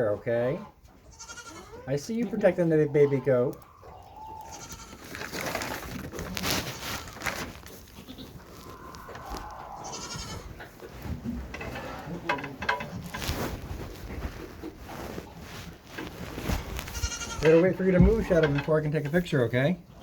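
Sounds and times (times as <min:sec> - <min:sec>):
goats bleating: 0:01.0 - 0:03.3, 0:04.3 - 0:05.5, 0:08.0 - 0:10.8, 0:16.9 - 0:18.4
rustling and clicking in pen: 0:03.5 - 0:19.3.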